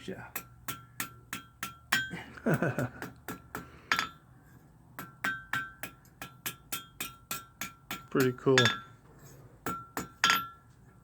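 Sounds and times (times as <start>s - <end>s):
hammer striking iron on anvil: 0.3s - 2.1s, 3.0s - 4.2s, 5.0s - 9.0s, 9.6s - 10.6s.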